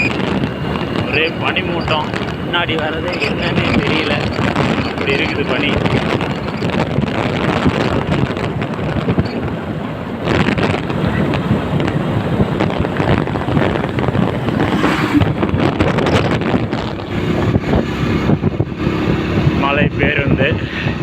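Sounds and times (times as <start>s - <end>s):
moving vehicle rumble: 0.0s - 21.0s
wind buffeting microphone: 0.0s - 21.0s.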